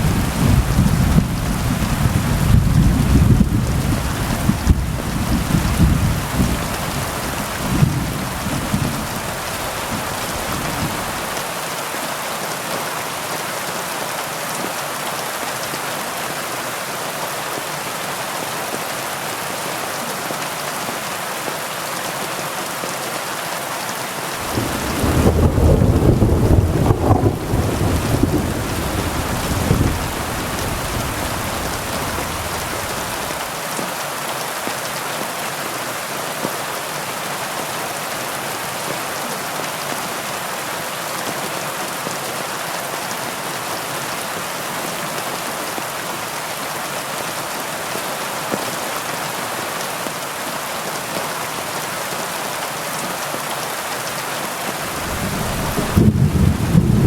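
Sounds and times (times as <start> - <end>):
thunder rumbling: 0.0 - 11.4, 24.4 - 33.4, 54.9 - 57.0
heavy rain: 0.0 - 57.0.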